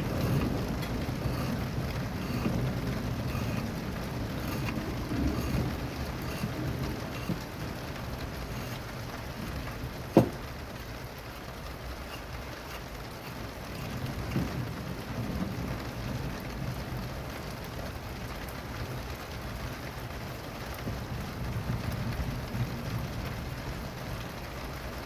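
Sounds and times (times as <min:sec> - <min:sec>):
low rumble of thunder: 0:00.0 - 0:10.8, 0:14.0 - 0:19.2, 0:20.8 - 0:24.5
steady rain falling: 0:00.0 - 0:25.0.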